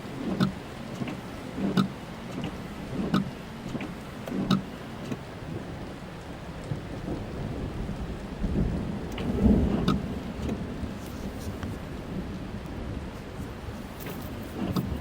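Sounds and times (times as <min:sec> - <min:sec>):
rain on car roof: 0:00.0 - 0:15.0
raindrop ticks: 0:00.2 - 0:15.0
low rumble of thunder: 0:05.5 - 0:15.0.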